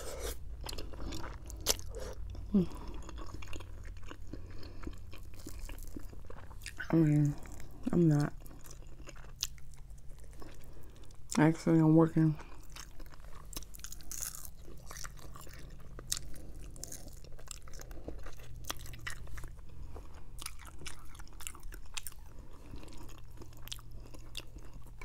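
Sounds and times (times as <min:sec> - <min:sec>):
person chewing crunchy food: 0:00.0 - 0:11.4, 0:12.2 - 0:25.0
faint low hum: 0:00.0 - 0:25.0.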